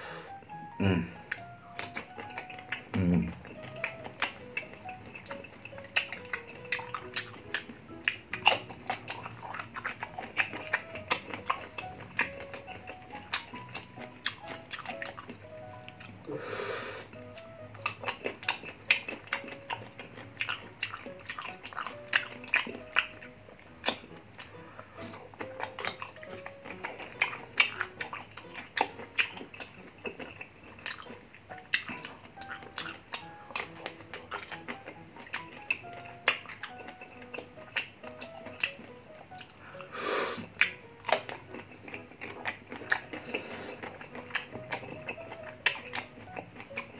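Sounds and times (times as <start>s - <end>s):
soft background music: 0.0s - 46.9s
wet mouth sounds: 0.9s - 46.9s
crunching and chewing: 1.2s - 46.9s.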